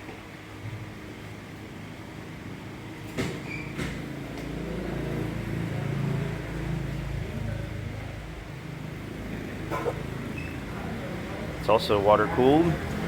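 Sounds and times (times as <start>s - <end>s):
vehicle engine humming: 4.0s - 13.0s.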